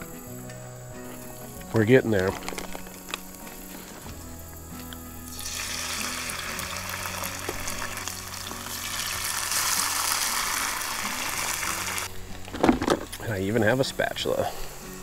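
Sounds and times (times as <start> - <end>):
potatoes sizzling in hot oil: 4.9 - 12.1.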